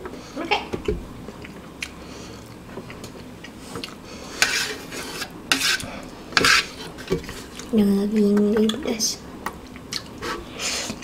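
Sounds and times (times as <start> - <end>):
chewing noodles: 9.6 - 11.0.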